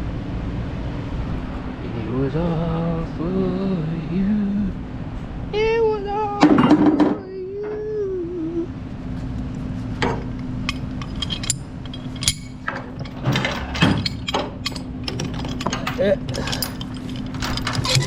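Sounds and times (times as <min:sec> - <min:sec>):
steady low hum: 0:00.0 - 0:18.0
chains clinking and clicking: 0:10.7 - 0:18.0.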